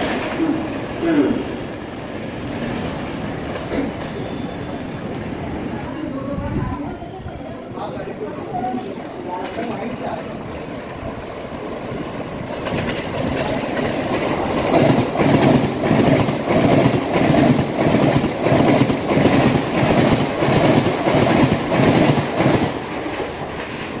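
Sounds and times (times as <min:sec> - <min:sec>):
train wheels clattering over rail joints: 0:12.4 - 0:24.0.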